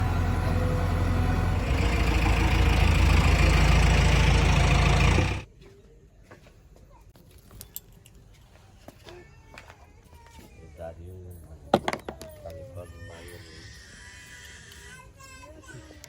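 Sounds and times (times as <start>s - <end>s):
heavy diesel engine running: 0.0s - 5.5s.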